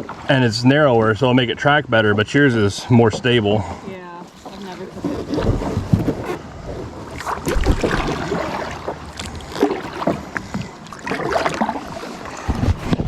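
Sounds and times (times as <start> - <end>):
water splashing and sloshing: 0.0 - 13.0
kayak knocks: 7.2 - 13.0.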